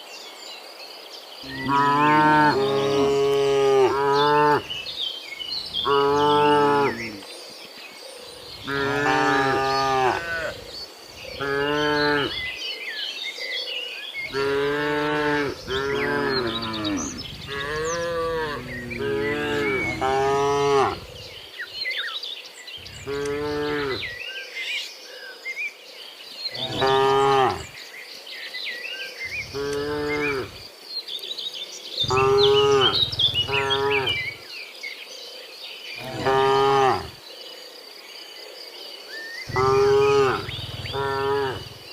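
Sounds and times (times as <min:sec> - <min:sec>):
cattle mooing: 0:01.5 - 0:04.7, 0:08.6 - 0:10.6, 0:14.3 - 0:21.2, 0:22.9 - 0:24.1, 0:26.6 - 0:27.7, 0:29.4 - 0:30.6, 0:32.0 - 0:34.4, 0:36.0 - 0:37.1, 0:39.5 - 0:41.9.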